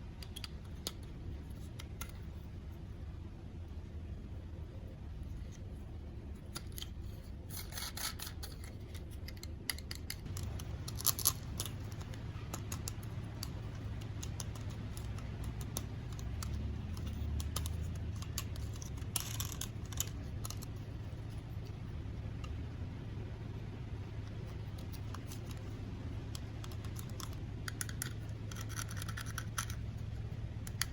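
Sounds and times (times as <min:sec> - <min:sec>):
low steady hum: 0:00.0 - 0:30.9
plastic toys clicking and scraping: 0:00.2 - 0:02.3, 0:06.4 - 0:21.8, 0:24.2 - 0:30.0, 0:30.6 - 0:30.9.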